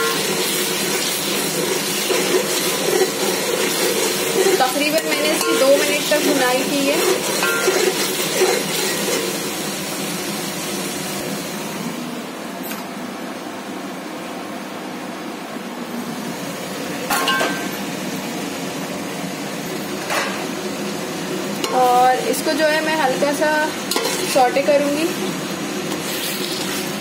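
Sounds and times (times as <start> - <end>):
masala sizzling in oil: 0.0 - 12.1, 16.1 - 27.0
steel cookware clinks: 7.4 - 8.0, 17.1 - 17.7.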